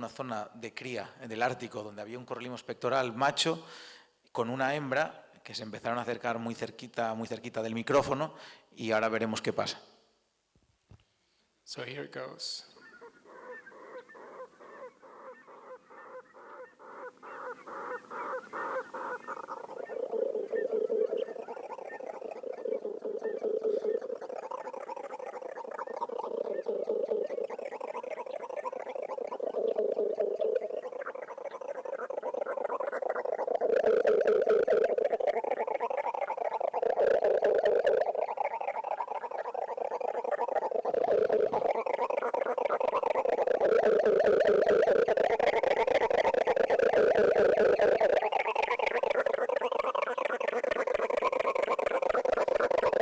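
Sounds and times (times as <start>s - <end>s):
rapid pulsed bird notes: 12.7s - 53.0s
deep hoots: 12.8s - 53.0s.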